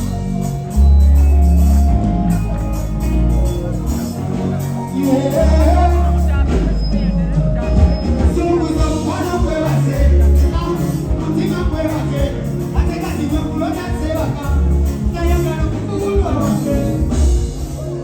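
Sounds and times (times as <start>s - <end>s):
heavy bass beat music: 0.0s - 18.0s
person singing: 4.8s - 6.8s, 7.5s - 18.0s.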